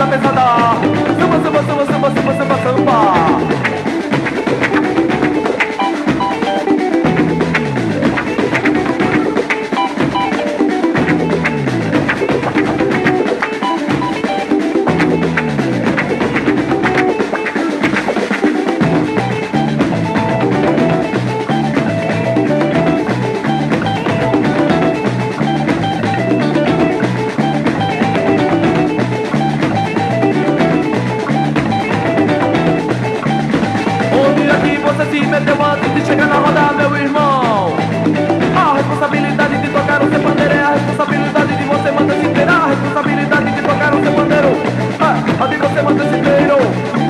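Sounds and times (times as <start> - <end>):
bass notes: 0.0 - 5.5, 6.1 - 9.4, 10.0 - 13.3, 13.9 - 17.2, 18.7 - 47.0
drum kit and percussion: 0.0 - 47.0
samba guitar: 0.0 - 47.0.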